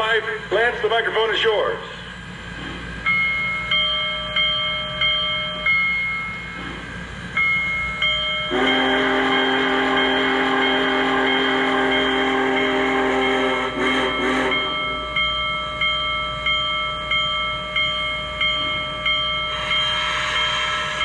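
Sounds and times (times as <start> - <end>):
locomotive bell ringing: 3.0 - 21.0
long steam whistle blast: 8.5 - 15.0, 19.5 - 21.0.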